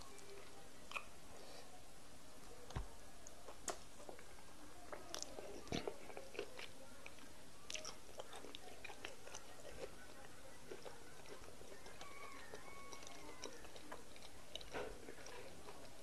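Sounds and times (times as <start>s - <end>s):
person chewing: 0.9s - 1.1s, 4.9s - 16.0s.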